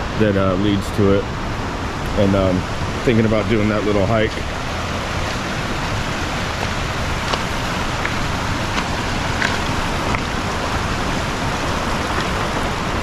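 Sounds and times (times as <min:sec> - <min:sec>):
river and waterfall rushing: 0:00.0 - 0:13.0
small splashing ticks: 0:04.4 - 0:11.0.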